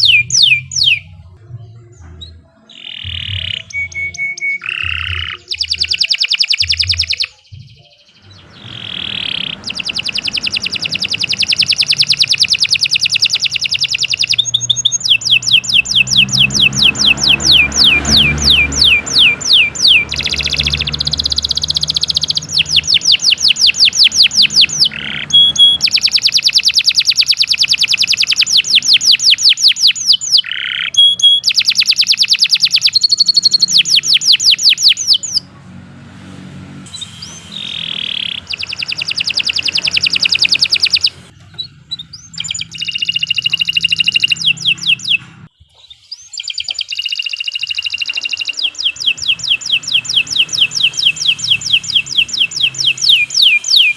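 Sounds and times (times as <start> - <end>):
canary singing trills: 0.0 - 53.9.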